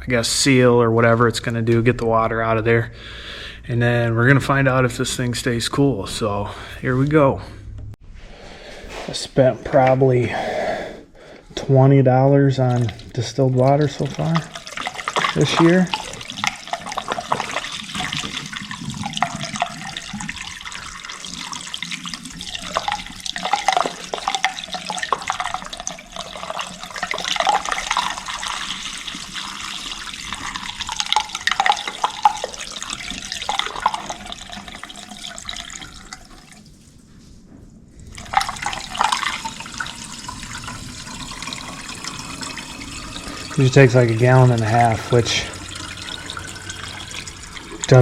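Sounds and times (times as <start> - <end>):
water pouring and gurgling: 11.2 - 37.1, 38.0 - 48.0.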